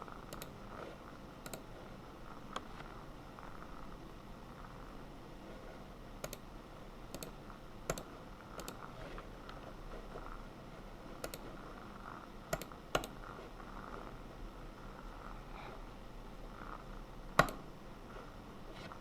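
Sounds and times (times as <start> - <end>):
faint steady hum: 0.0 - 19.0
computer keyboard keystrokes: 0.3 - 0.5, 1.4 - 1.6, 6.2 - 6.4, 7.1 - 8.8, 11.2 - 11.5, 12.5 - 13.2, 17.4 - 17.6.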